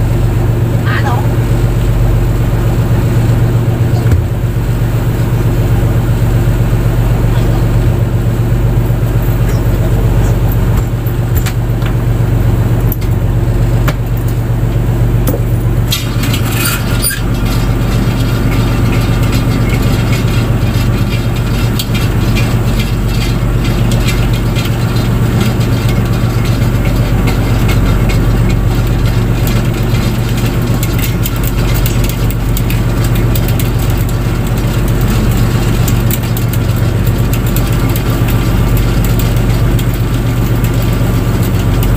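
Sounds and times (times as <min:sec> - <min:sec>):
boat engine droning: 0:00.0 - 0:41.9
clicks and clatter: 0:08.8 - 0:41.9.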